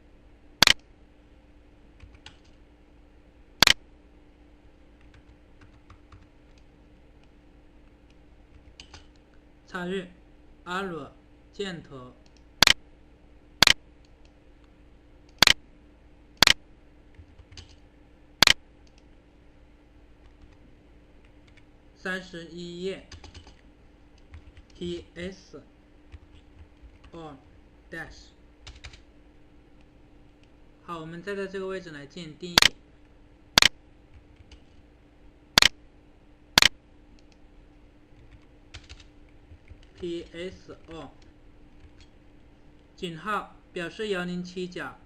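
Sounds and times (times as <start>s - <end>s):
faint steady hum: 0.0s - 45.0s
computer mouse clicking: 0.6s - 0.8s, 2.0s - 2.6s, 8.1s - 9.2s, 12.2s - 12.8s, 13.6s - 14.4s, 15.3s - 15.6s, 16.4s - 17.8s, 18.4s - 19.1s, 38.2s - 40.0s.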